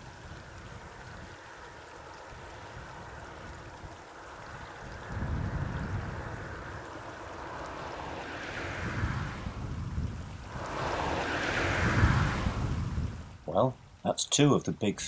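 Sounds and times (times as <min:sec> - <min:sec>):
steady high hiss: 0:00.0 - 0:15.0
wind buffeting microphone: 0:02.4 - 0:13.9.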